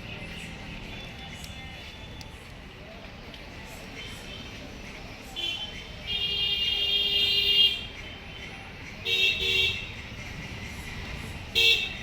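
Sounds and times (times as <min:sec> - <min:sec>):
street traffic noise: 0:00.0 - 0:12.0
vehicle horn honking: 0:09.1 - 0:09.9, 0:11.6 - 0:12.0.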